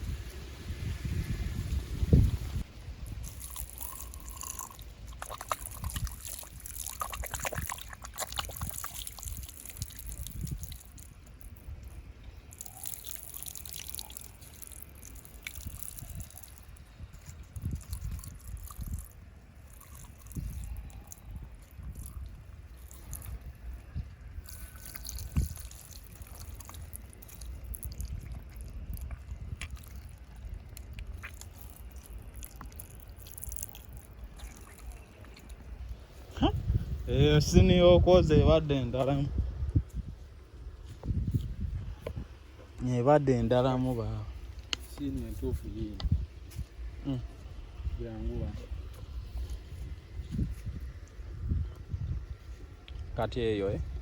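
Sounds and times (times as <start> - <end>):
water trickling and sloshing: 2.1 - 36.8.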